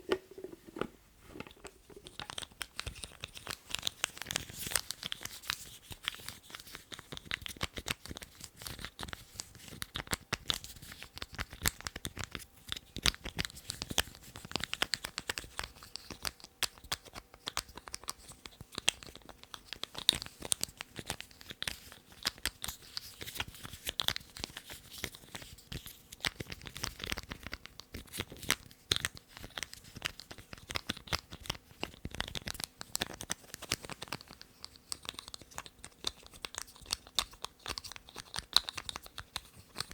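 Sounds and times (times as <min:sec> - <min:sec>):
lids clicking and crinkling: 0:00.0 - 0:03.5.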